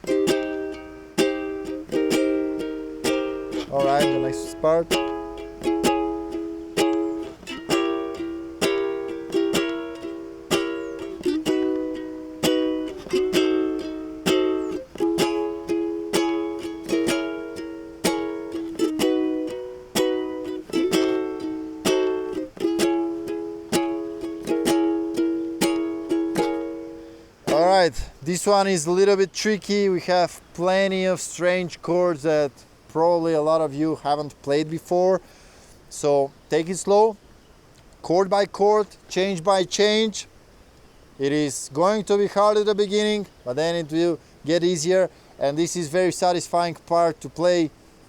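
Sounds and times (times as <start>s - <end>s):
ukulele strumming chords: 0.0s - 28.1s.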